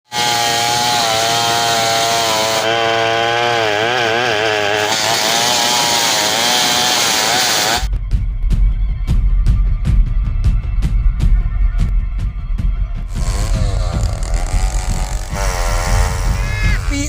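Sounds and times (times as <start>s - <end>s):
chainsaw cutting log: 0.1s - 7.9s, 13.1s - 17.0s
music with a beat: 7.9s - 13.1s.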